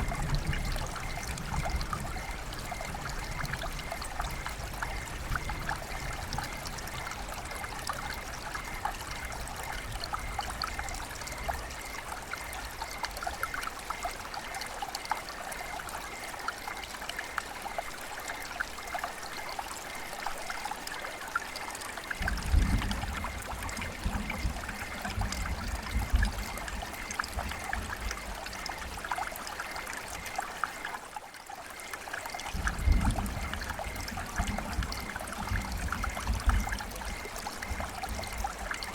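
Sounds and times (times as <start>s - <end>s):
river water trickling and splashing: 0.0s - 38.9s.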